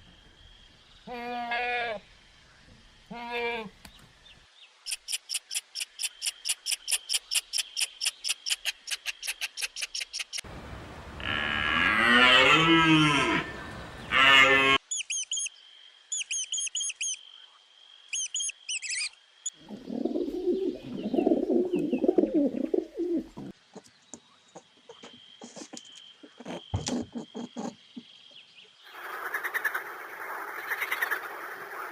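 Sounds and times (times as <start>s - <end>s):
rough low animal call: 10.6s - 14.8s
cow mooing: 11.2s - 14.8s
fast high chirps: 14.9s - 15.5s, 16.1s - 17.2s, 18.1s - 19.2s
short high bird chirps: 14.9s - 15.5s, 16.2s - 17.2s, 18.1s - 19.2s.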